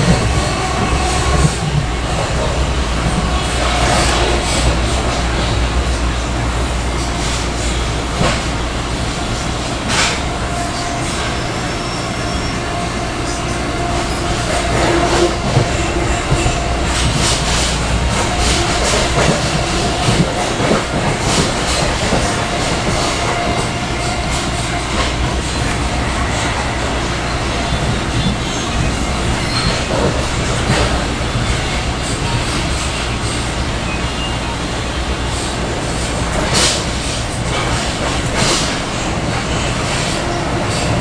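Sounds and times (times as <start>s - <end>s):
train rumbling: 0.0s - 41.0s
train clicks: 7.0s - 11.3s, 13.8s - 33.9s, 34.8s - 41.0s
high squeal: 10.0s - 17.8s.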